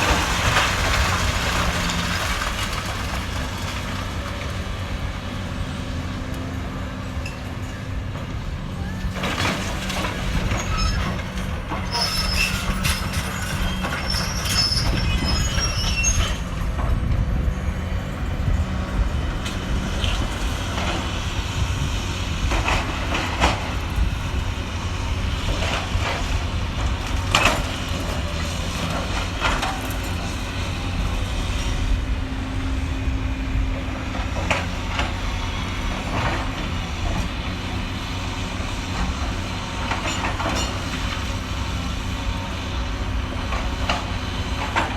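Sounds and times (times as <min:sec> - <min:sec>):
excavator diesel engine running: 0:00.0 - 0:44.9
metallic squeals and scrapes: 0:10.4 - 0:16.6.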